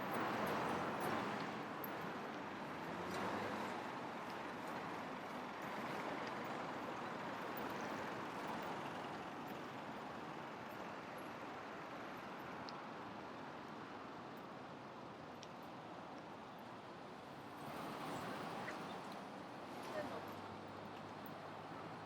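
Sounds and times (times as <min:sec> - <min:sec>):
passing vehicles: 0:00.0 - 0:10.8, 0:17.3 - 0:22.0.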